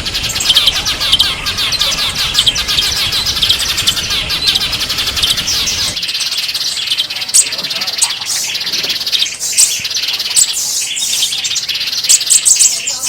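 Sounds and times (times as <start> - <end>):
low background rumble: 0.0 - 6.0
songbirds chirping: 0.0 - 13.0.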